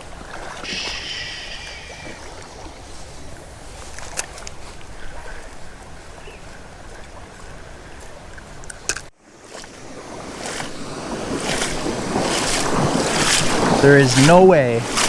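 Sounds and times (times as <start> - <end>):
creek and waterfall rushing: 9.3 - 15.0.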